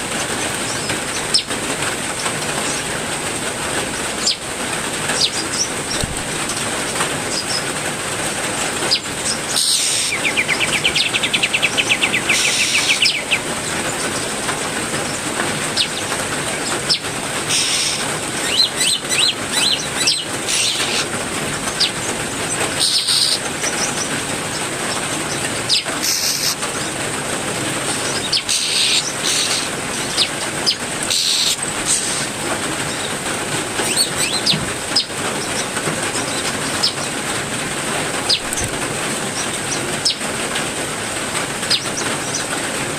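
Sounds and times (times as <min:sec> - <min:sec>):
songbirds calling: 0:00.0 - 0:42.6
heavy rain: 0:00.0 - 0:42.9
bird trilling: 0:08.9 - 0:14.2, 0:16.9 - 0:21.1, 0:21.7 - 0:24.1, 0:25.3 - 0:26.6, 0:28.0 - 0:32.3, 0:33.8 - 0:37.0.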